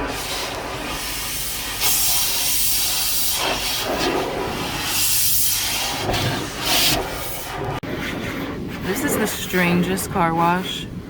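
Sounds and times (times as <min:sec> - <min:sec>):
car wash equipment hissing: 0:00.0 - 0:07.8.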